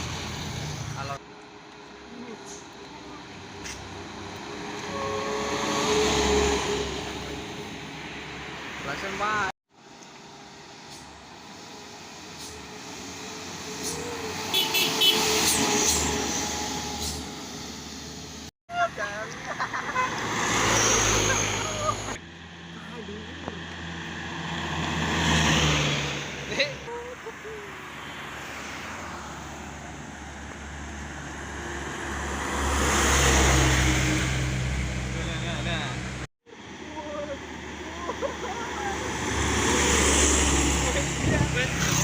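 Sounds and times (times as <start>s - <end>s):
truck passing: 0.0s - 42.0s
truck driving past: 38.6s - 42.0s.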